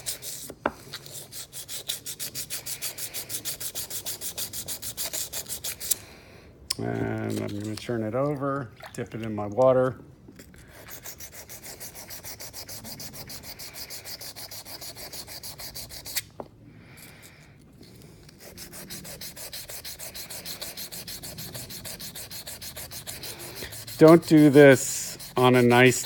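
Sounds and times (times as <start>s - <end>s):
sandpaper rubbing on metal: 0.0s - 6.0s, 10.8s - 16.2s, 18.3s - 26.0s.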